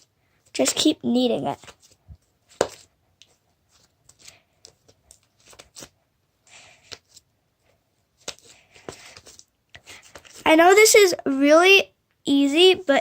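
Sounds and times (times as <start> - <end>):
hands kneading sticky slime: 0.0 - 6.0.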